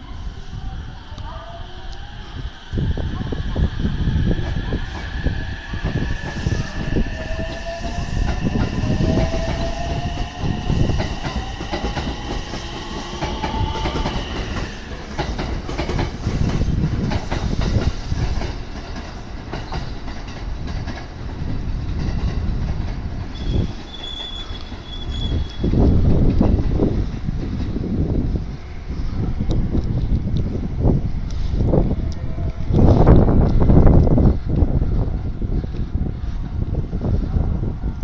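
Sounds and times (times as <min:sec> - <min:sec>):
train wheels clacking on rail joints: 0:07.2 - 0:27.8.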